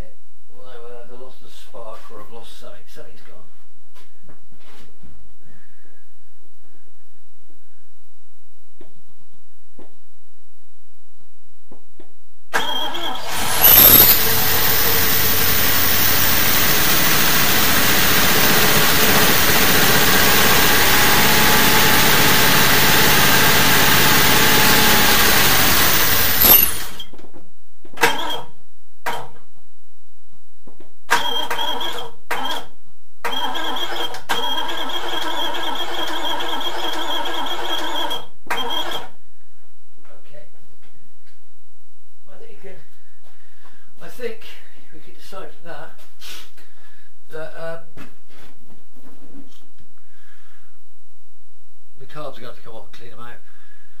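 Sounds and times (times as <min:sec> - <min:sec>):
car starter motor cranking: 0:12.6 - 0:27.1, 0:28.0 - 0:28.5, 0:33.3 - 0:39.1.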